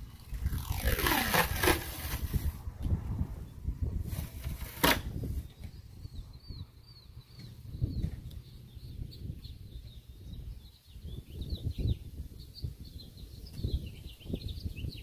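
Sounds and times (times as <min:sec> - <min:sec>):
small birds chirping: 0:05.4 - 0:15.0.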